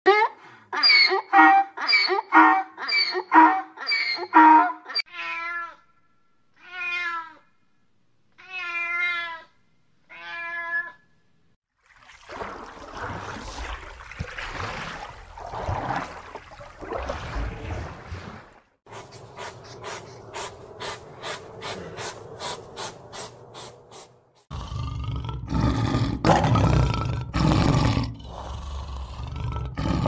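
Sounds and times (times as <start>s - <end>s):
donkey braying: 0.1s - 5.1s
cat meowing: 6.6s - 7.4s, 8.4s - 9.5s.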